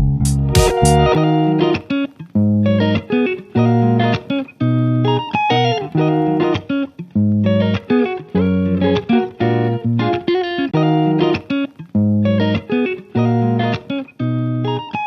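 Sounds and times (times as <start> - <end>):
guitar instrumental music: 0.0 - 15.0.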